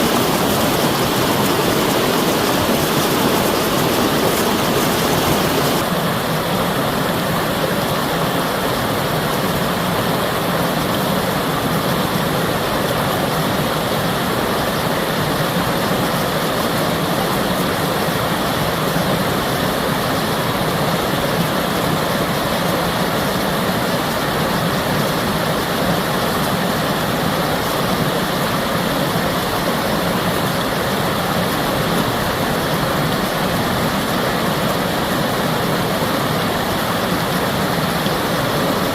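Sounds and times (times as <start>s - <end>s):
flowing water rushing: 0.0s - 38.9s.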